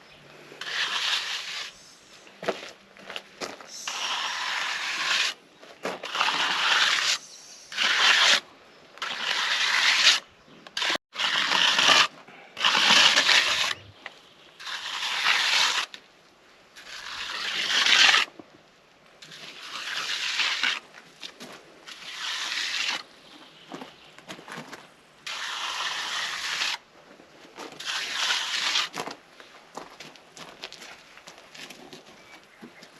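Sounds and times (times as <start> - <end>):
hand tool scraping wet concrete: 0.6 - 1.9, 3.7 - 8.4, 9.0 - 13.9, 14.6 - 16.0, 16.8 - 18.3, 19.2 - 23.1, 25.2 - 26.8, 27.6 - 29.2.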